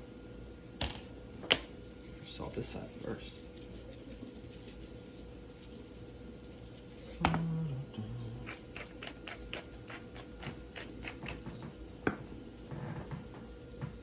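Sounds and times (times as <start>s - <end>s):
salt shaker rattling: 1.9s - 7.2s.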